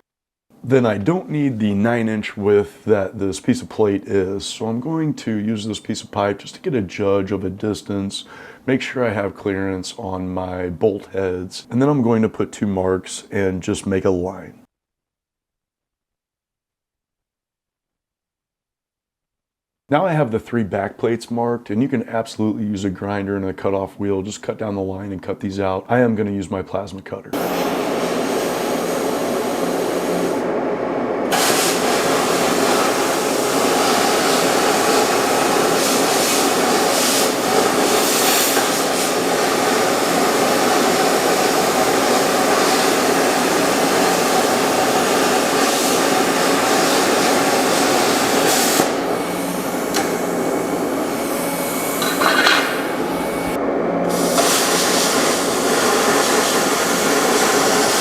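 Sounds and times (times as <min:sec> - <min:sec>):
plasma cutter hissing: 0:27.4 - 0:30.5, 0:31.3 - 0:58.0.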